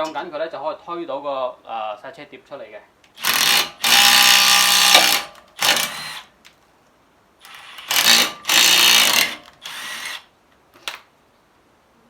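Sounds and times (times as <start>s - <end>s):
power tool driving bolts: 3.1s - 6.3s, 7.4s - 11.1s.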